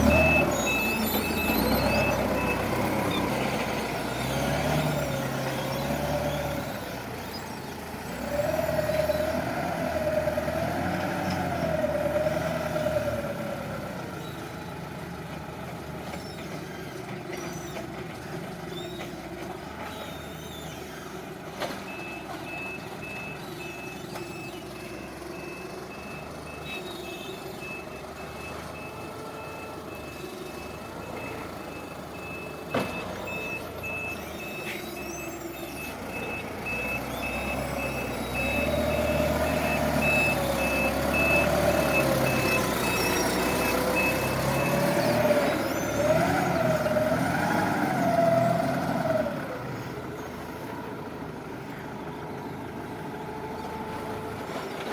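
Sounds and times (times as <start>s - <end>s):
reversing alarm beeping: 0.0s - 3.5s, 21.9s - 46.9s
forklift engine running: 0.0s - 54.9s.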